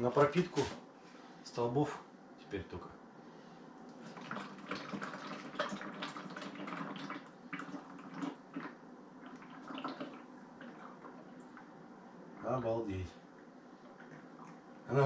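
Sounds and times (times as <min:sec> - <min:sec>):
oil pouring into a container: 0:04.0 - 0:10.9.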